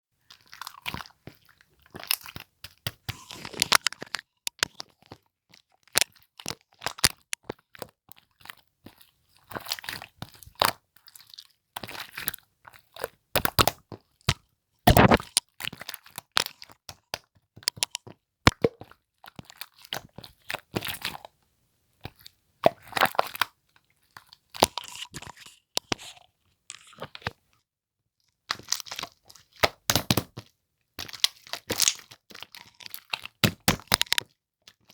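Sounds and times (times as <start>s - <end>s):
slime squishing and crackling: 0.4s - 7.6s, 14.9s - 16.6s, 17.6s - 18.7s, 28.5s - 34.9s.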